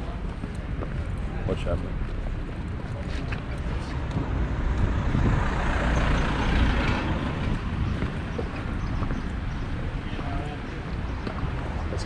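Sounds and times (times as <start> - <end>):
vehicle driving past: 4.2 - 8.2.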